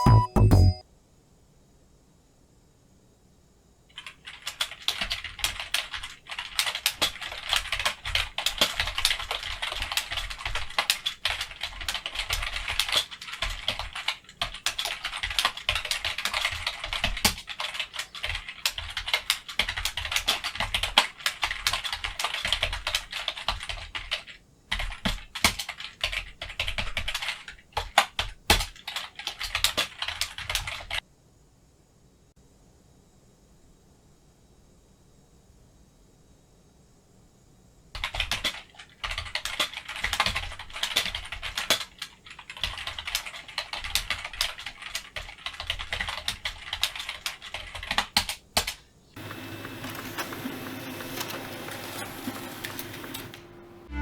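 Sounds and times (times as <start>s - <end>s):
rapid typing on keyboard: 3.9s - 31.0s, 38.0s - 53.4s.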